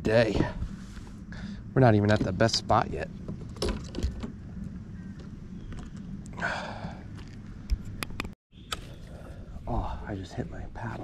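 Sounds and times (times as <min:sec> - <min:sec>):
steady low rumble: 0:00.0 - 0:08.4
fishing gear clicking and knocking: 0:03.2 - 0:04.4.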